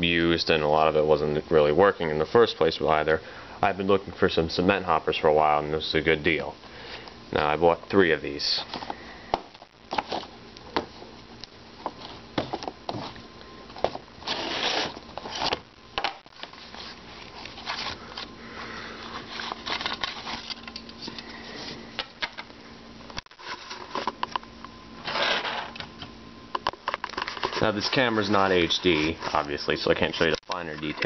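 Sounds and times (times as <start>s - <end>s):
packaging rustling: 19.0s - 21.2s.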